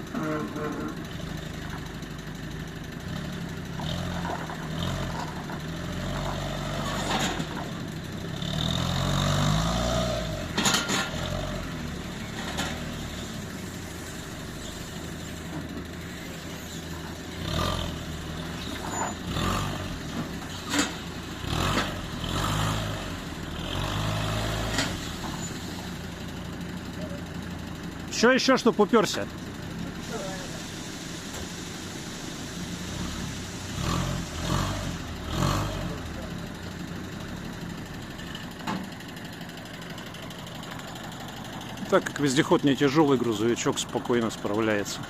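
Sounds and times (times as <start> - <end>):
vehicle engine revving: 3.0 - 13.7, 16.2 - 26.3, 32.8 - 38.4.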